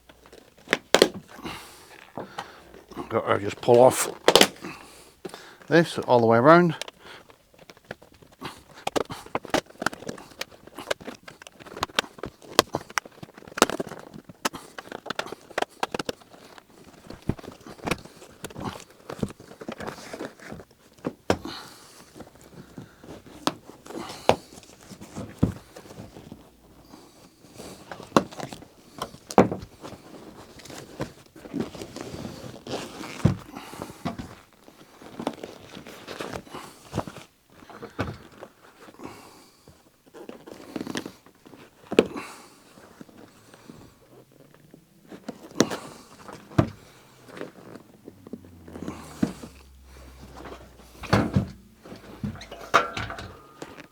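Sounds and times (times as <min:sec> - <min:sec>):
rustle of cover material: 0:21.7 - 0:39.0
seat cover clicks and snaps: 0:50.3 - 0:53.9.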